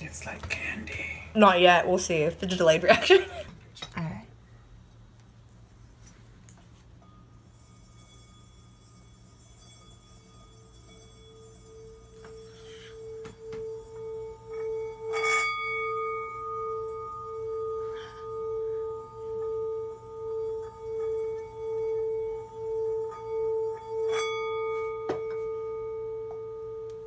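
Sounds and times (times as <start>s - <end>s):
singing bowl ringing: 6.7s - 27.0s.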